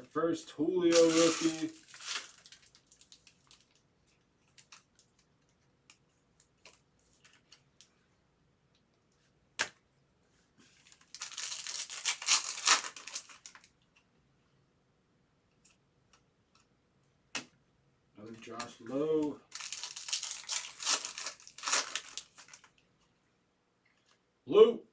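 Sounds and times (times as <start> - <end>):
foil card pack tearing: 0.9 - 3.6, 10.9 - 13.7, 19.5 - 22.7.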